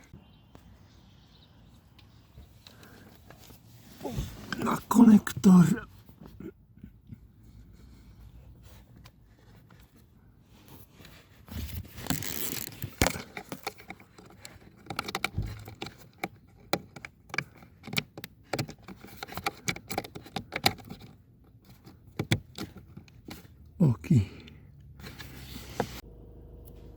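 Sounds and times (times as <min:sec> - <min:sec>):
plastic rustling scrape: 0:10.9 - 0:13.4
plastic clicks taps and rattles: 0:12.1 - 0:23.3.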